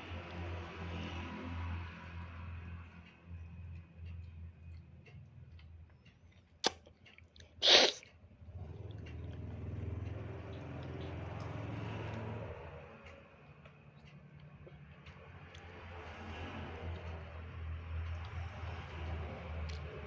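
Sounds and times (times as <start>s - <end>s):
small child sneezing: 7.6s - 8.0s.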